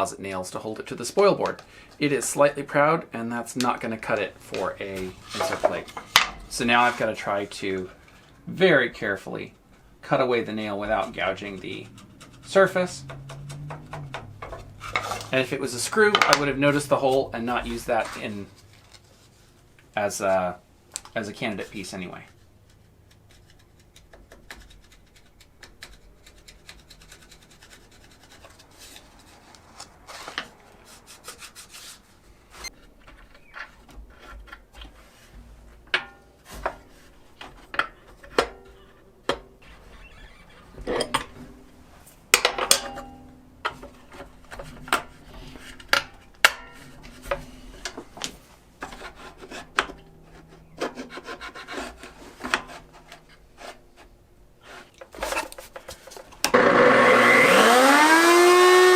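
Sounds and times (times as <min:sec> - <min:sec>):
blade scraping nail: 0:10.9 - 0:15.3, 0:23.1 - 0:29.2.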